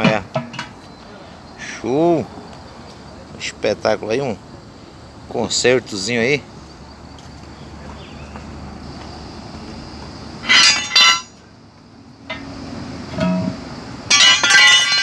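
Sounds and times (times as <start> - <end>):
metallic clinking and rattling: 10.4 - 11.4, 12.3 - 15.0
low steady hum: 12.3 - 15.0.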